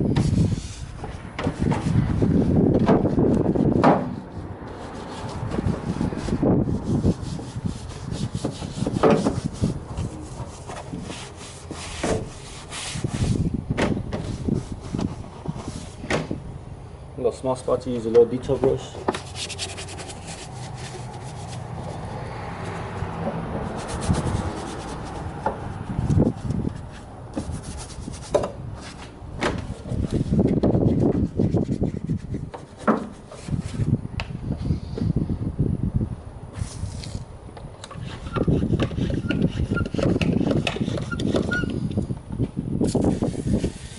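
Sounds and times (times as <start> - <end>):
brush scrubbing: 4.7 - 13.5, 19.2 - 28.3, 29.8 - 33.6.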